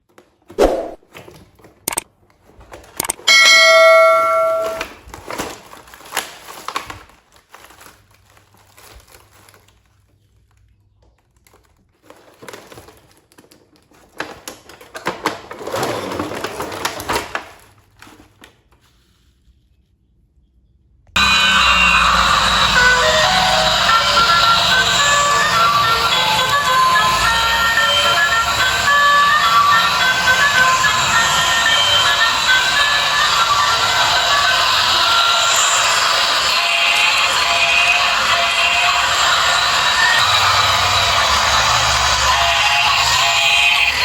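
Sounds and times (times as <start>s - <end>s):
bell ding: 3.3s - 4.9s
packaging rustling: 5.0s - 19.3s.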